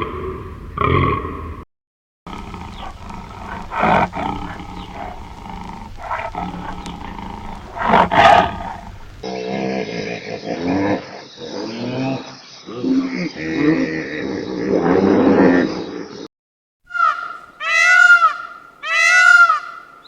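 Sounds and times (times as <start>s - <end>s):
big cat roaring and growling: 0.0s - 1.6s, 2.3s - 16.2s
different animal sound: 2.3s - 16.1s, 16.9s - 20.0s.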